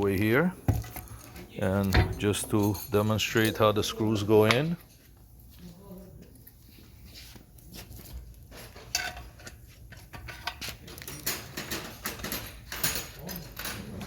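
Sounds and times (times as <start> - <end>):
metallic clinks and rattles: 0.8 - 3.7, 10.1 - 14.0.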